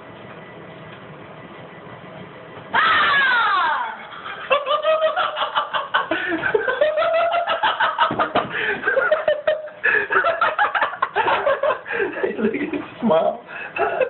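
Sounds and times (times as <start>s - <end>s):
person shrieking: 2.8s - 4.1s.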